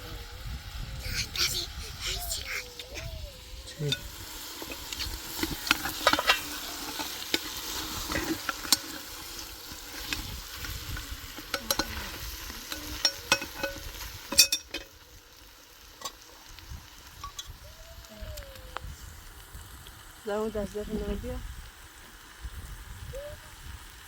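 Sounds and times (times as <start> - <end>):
food sizzling in a pan: 0.0 - 24.0
utensil scraping a pan: 3.9 - 14.8.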